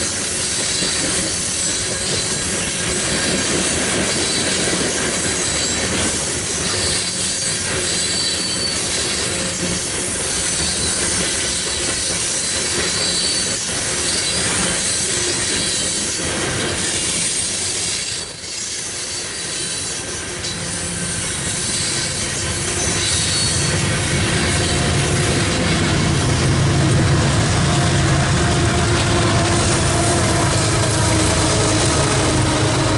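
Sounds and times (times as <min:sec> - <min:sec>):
freight train cars rolling: 0:00.0 - 0:32.9
steel wheels squealing on rail: 0:00.0 - 0:32.9
deep rumble: 0:24.0 - 0:32.9.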